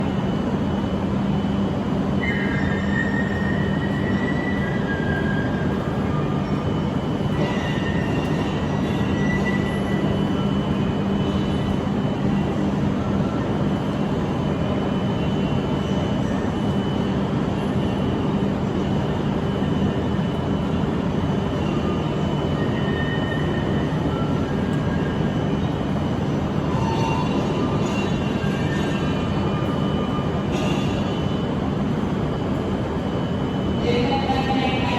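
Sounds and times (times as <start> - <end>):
high train whine: 0.0 - 34.9
train rumble: 0.0 - 34.9.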